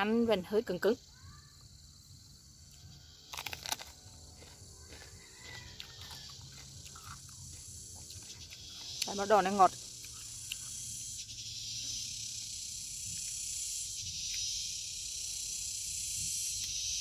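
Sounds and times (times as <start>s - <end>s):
insects buzzing: 0.0s - 17.0s
quiet chewing: 2.7s - 9.2s, 10.0s - 10.8s
crunching bite into pepper: 3.2s - 9.1s.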